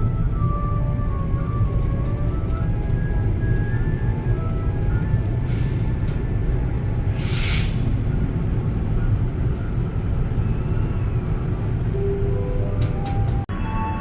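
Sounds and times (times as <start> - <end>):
train rumbling inside coach: 0.0 - 14.0
short burst of hiss: 7.1 - 8.1.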